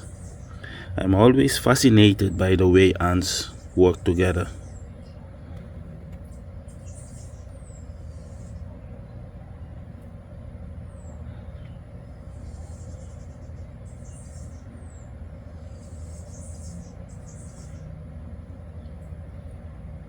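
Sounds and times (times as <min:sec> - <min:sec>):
distant road traffic rumble: 0:00.0 - 0:20.0.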